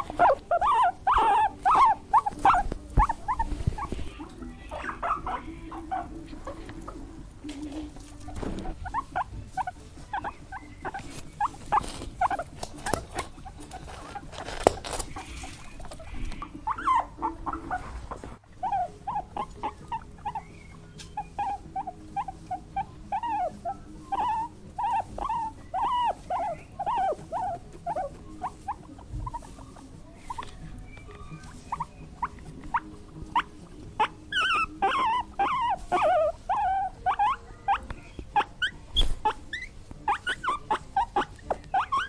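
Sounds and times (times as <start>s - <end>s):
small animals squeaking: 0.0s - 42.0s.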